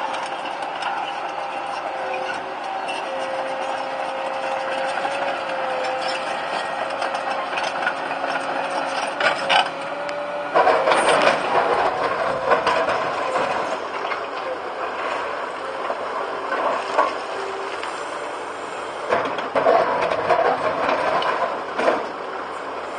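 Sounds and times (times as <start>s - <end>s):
excavator whining: 0.0s - 22.9s
machine clattering and knocking: 10.5s - 14.2s, 19.1s - 22.1s.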